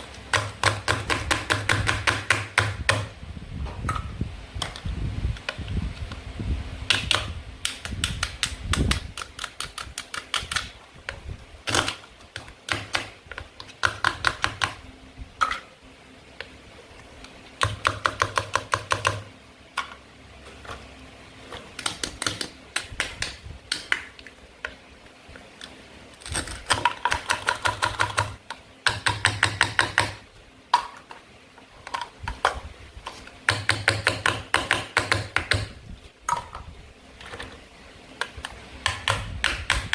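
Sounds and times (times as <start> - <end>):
toy knife clicking through play food: 7.7 - 10.7, 26.2 - 30.2.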